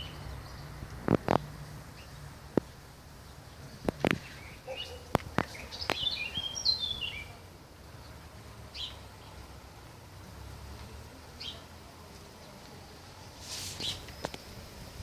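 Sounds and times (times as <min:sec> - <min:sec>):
songbird singing: 0:00.0 - 0:15.0.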